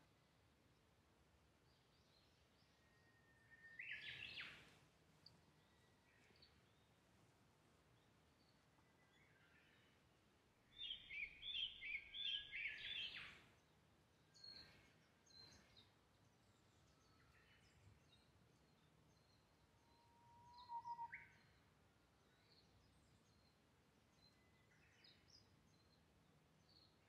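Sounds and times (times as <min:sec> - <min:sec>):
birds singing: 0:01.9 - 0:04.8, 0:10.6 - 0:27.0
whistled bird note: 0:20.0 - 0:21.3.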